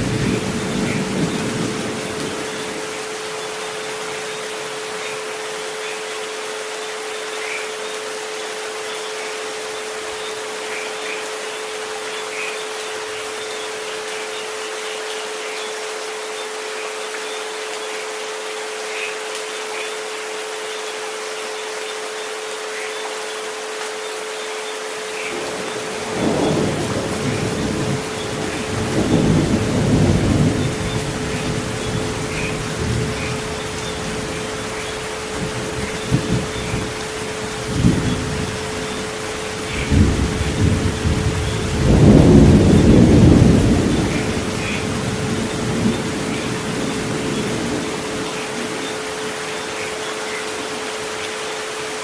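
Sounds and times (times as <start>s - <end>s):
thunder rumbling: 0.0s - 3.1s, 25.4s - 49.4s
steady rain hiss: 0.0s - 52.0s.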